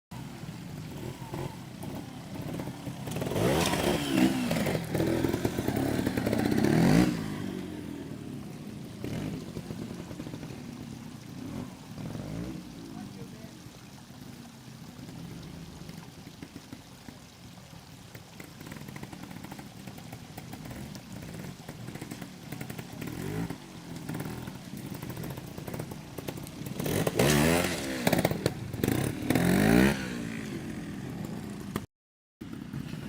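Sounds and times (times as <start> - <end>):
motorcycle engine revving: 0.1 - 13.3, 20.3 - 33.0.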